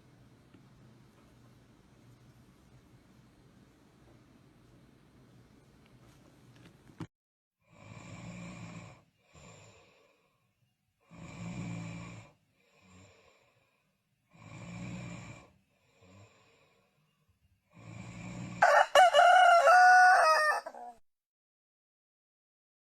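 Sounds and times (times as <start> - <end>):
person snoring: 7.7 - 10.3, 11.0 - 13.7, 14.3 - 16.8, 17.7 - 18.8
rooster crowing: 18.6 - 21.0.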